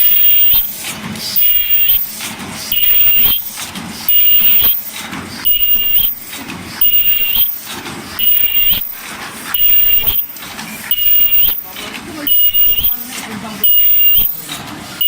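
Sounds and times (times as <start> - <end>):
high whistle-like machine tone: 0.0 - 0.7, 1.4 - 2.1, 2.7 - 3.5, 4.1 - 4.9, 5.5 - 6.2, 6.8 - 7.6, 8.2 - 9.0, 9.6 - 10.3, 10.9 - 11.6, 12.3 - 13.0, 13.6 - 14.4
machine clatter: 0.0 - 15.0.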